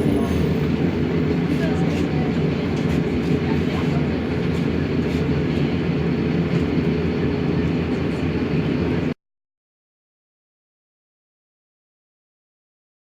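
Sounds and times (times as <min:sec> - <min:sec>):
bus diesel engine droning: 0:00.0 - 0:09.2.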